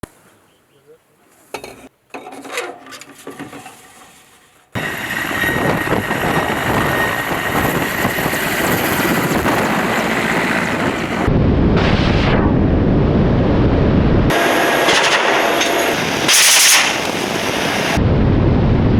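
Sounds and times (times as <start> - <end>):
helicopter turbine and rotor: 4.8 - 11.4, 14.3 - 18.0.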